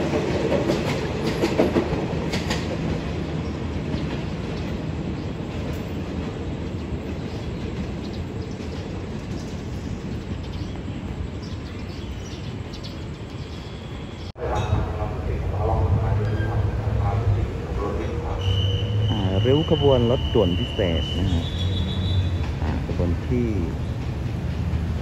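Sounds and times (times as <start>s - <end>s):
train wheels clattering: 0.0s - 10.6s, 16.2s - 25.0s.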